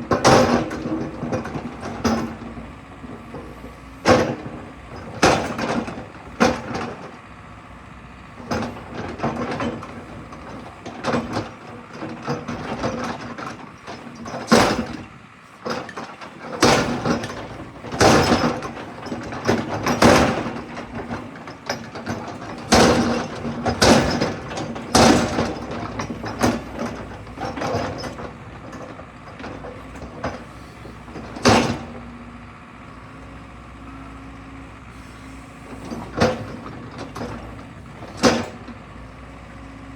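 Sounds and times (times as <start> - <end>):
excavator engine and hydraulics hum: 0.0 - 39.9
sharp metal clanks and knocks: 15.6 - 30.5, 31.1 - 32.0, 35.8 - 38.8.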